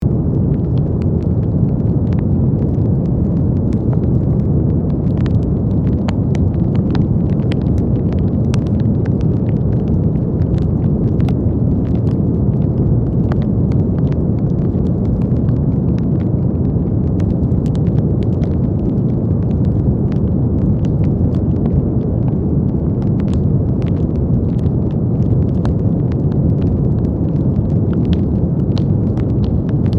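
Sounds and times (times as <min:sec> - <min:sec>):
fire crackling and popping: 0:00.0 - 0:29.9
fire low rumble: 0:00.0 - 0:29.9.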